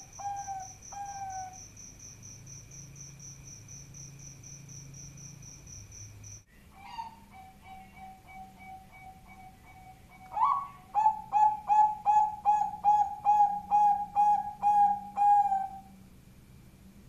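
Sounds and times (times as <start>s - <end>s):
zebra dove cooing: 0.0s - 1.6s, 6.8s - 15.9s.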